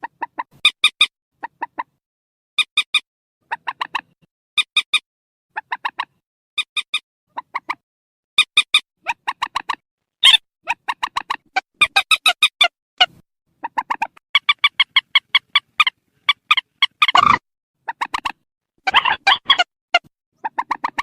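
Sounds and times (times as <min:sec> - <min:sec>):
swamphen clucking calls: 0:13.6 - 0:21.0.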